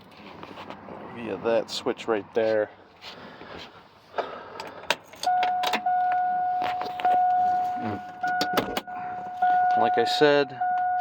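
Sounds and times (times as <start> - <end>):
dashboard warning chime: 5.2 - 11.0.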